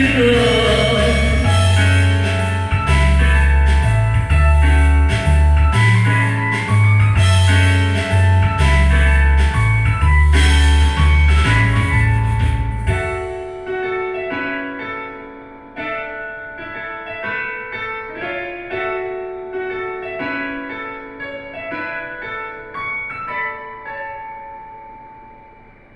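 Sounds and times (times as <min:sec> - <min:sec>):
pop band with bass and drums: 0:00.0 - 0:13.7
piano chords: 0:00.0 - 0:25.9.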